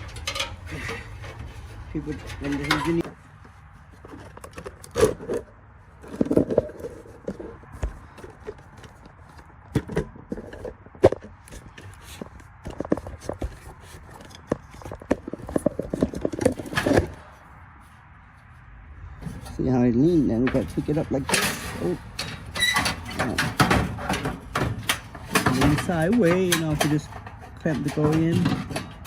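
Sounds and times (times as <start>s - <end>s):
metallic knocks and clanks: 0.0s - 3.2s, 19.2s - 29.0s
metal scraping: 0.0s - 17.6s, 19.0s - 29.0s.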